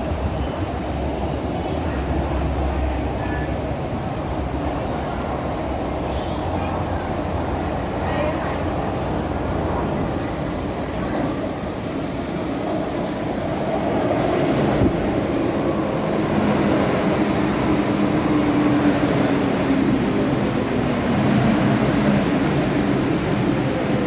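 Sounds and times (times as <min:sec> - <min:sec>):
wheel and brake squeal: 0:09.8 - 0:20.0.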